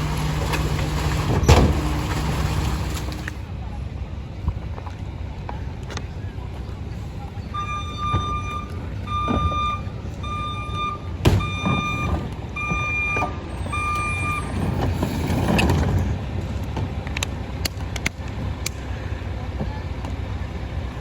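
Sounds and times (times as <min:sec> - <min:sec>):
truck engine rumble: 0:00.0 - 0:21.0
reversing alarm beeping: 0:07.5 - 0:14.7.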